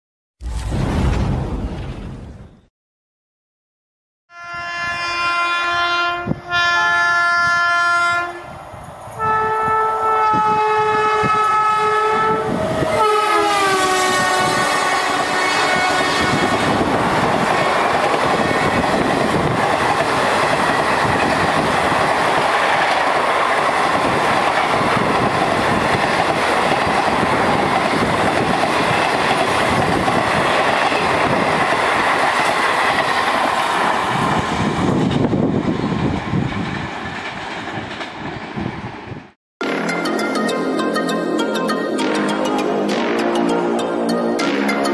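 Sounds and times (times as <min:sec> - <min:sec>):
shrill locomotive horn: 0:04.3 - 0:08.6, 0:09.2 - 0:16.9
train coaches rushing past: 0:11.2 - 0:40.0.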